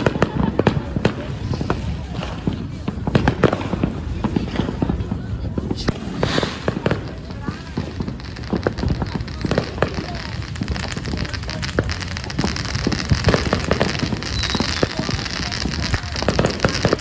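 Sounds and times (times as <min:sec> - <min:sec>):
fireworks crackling: 0:00.0 - 0:17.0
fireworks hiss: 0:00.0 - 0:17.0.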